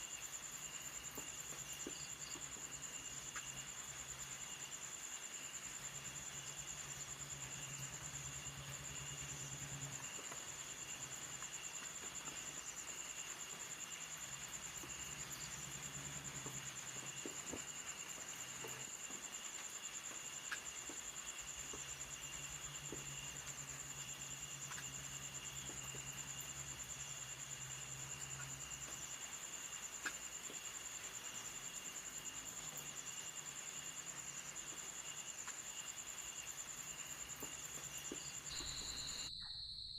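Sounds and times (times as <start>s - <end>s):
insects trilling: 0.0s - 39.9s
lower insect trill: 0.0s - 39.9s.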